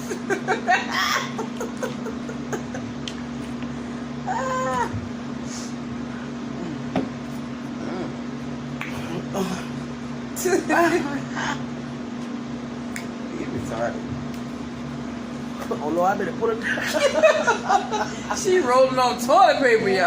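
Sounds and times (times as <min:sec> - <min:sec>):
low hum: 0:00.0 - 0:15.6.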